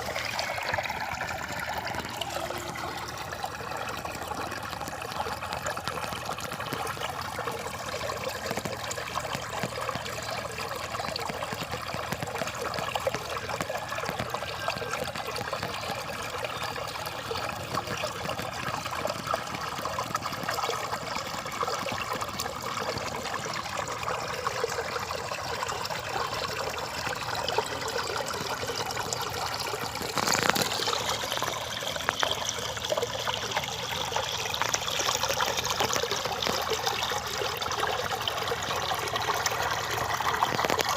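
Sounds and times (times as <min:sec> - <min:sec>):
rainwater trickling in a channel: 0:00.0 - 0:40.9.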